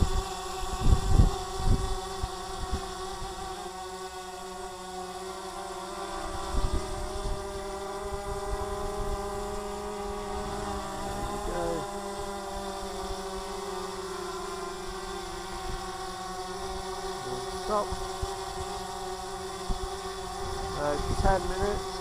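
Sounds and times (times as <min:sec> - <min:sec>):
wind rumbling on microphone: 0:00.0 - 0:03.4, 0:06.3 - 0:11.9, 0:19.4 - 0:22.0
drone propellers buzzing whine: 0:00.0 - 0:22.0.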